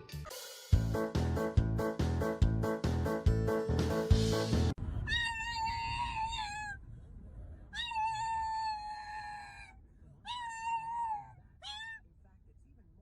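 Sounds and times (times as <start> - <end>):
cat meowing: 5.1 - 6.8, 7.7 - 12.0.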